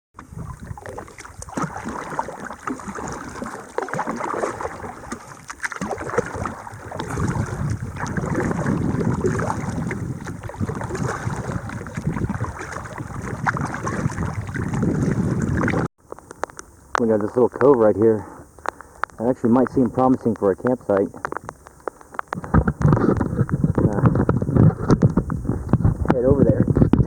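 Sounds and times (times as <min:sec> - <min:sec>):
wind buffeting microphone: 0:00.2 - 0:03.5, 0:04.2 - 0:15.9, 0:22.3 - 0:27.0
water splashing around kayak: 0:00.2 - 0:16.2.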